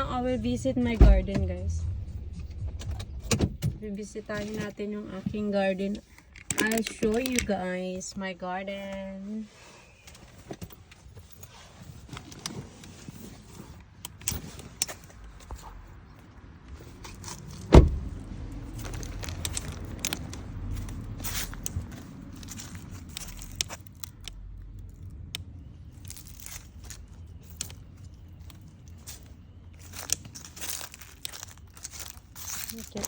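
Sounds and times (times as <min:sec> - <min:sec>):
low rumble: 0:00.0 - 0:04.4, 0:17.7 - 0:23.6
loud thump: 0:17.7 - 0:18.2.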